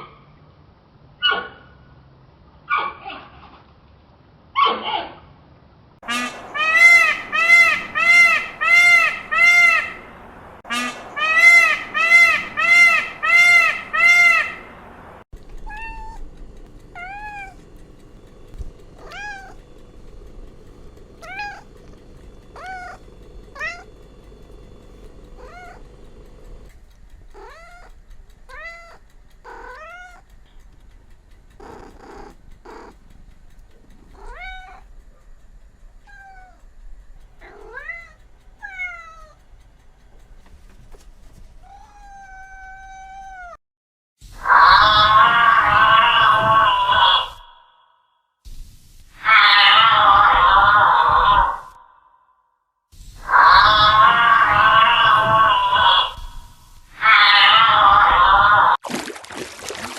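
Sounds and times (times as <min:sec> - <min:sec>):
faint steady hum: 0:06.0 - 0:41.4, 0:53.0 - 0:58.8
cats meowing: 0:15.4 - 0:30.4, 0:31.5 - 0:33.0, 0:34.0 - 0:34.9, 0:36.0 - 0:36.7, 0:37.4 - 0:39.4, 0:41.6 - 0:43.6, 0:44.4 - 0:47.4, 0:49.2 - 0:51.8, 0:53.2 - 0:58.8.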